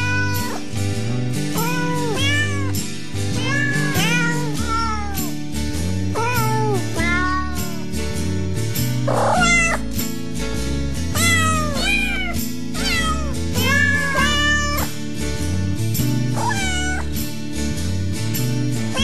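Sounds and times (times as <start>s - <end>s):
cat meowing: 0.0s - 0.6s, 1.6s - 2.8s, 3.4s - 5.3s, 6.2s - 7.8s, 9.1s - 9.9s, 11.2s - 14.9s, 16.4s - 17.1s.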